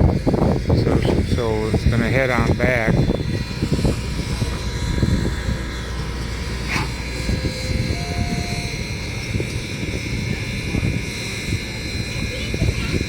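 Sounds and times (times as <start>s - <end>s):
steam locomotive rumbling: 0.0s - 13.0s
brief squeal: 6.6s - 8.8s.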